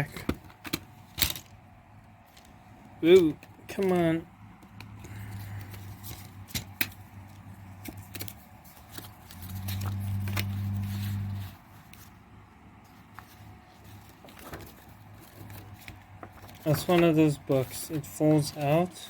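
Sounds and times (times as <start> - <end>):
low hum: 4.2 - 16.6.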